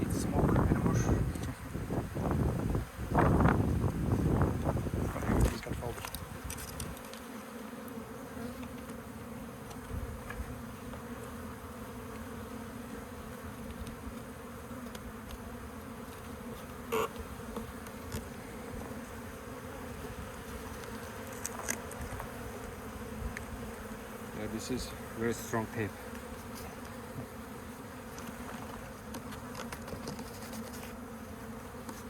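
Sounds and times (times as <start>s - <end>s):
honeybees buzzing: 0.0s - 32.0s.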